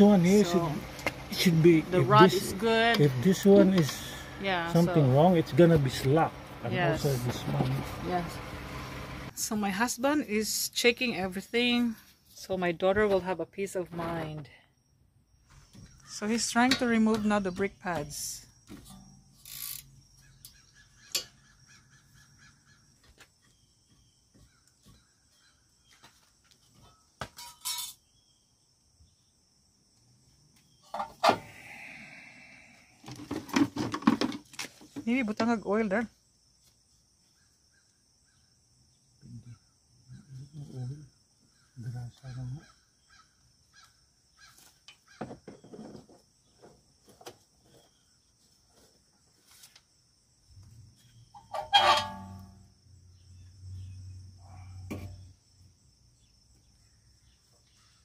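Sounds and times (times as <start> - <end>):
insects chirring: 0.0 - 58.0
metal tools clinking: 27.4 - 28.0, 51.4 - 52.5
metal scraping: 51.4 - 52.6.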